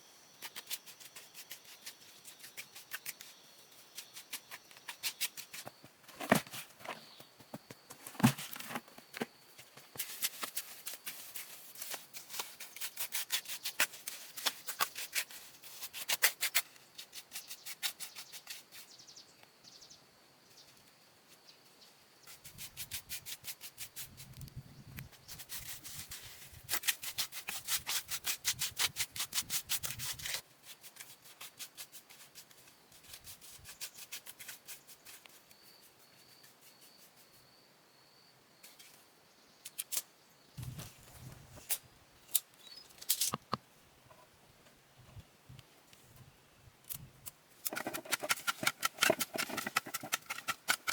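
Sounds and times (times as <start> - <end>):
fast scraping strokes: 47.6 - 50.9.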